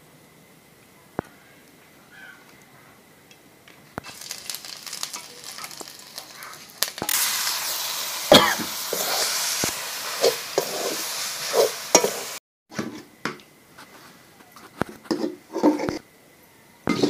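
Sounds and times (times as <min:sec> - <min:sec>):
food sizzling in a pan: 0:04.0 - 0:12.4.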